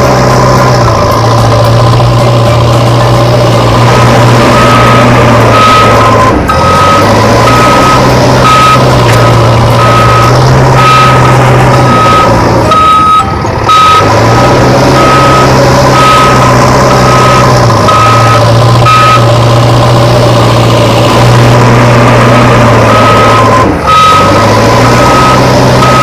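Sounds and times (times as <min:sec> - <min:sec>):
engine drone: 0:00.0 - 0:26.0
reversing alarm beeping: 0:00.0 - 0:26.0.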